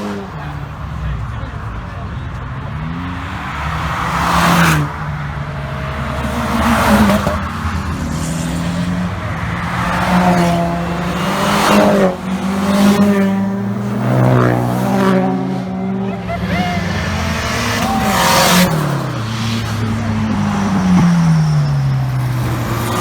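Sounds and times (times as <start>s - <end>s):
car engines revving and accelerating: 0.0s - 23.0s.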